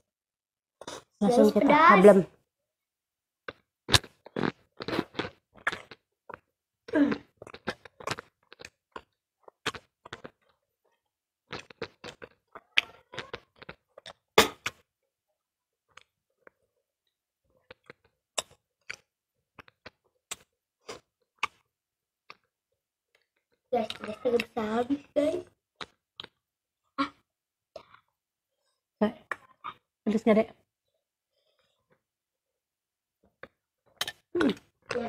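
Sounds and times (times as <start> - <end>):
people chewing with wet smacks: 0.8 - 1.2, 3.4 - 14.9, 15.8 - 16.8, 17.5 - 24.6, 25.7 - 28.2.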